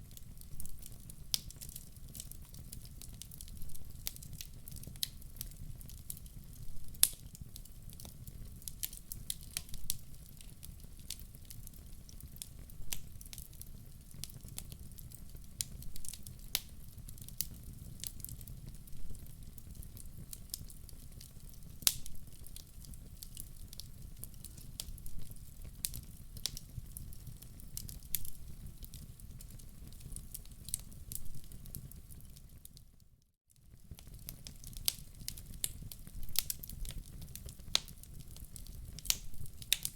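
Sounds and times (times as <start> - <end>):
low rumble of flames: 0.0 - 32.4
wood fire crackling and popping: 0.0 - 33.0, 33.6 - 39.9.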